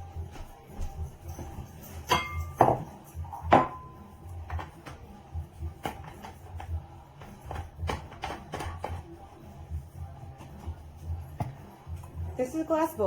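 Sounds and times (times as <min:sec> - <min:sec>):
background music: 0:00.0 - 0:13.0
glass bowl clinking: 0:01.3 - 0:04.6.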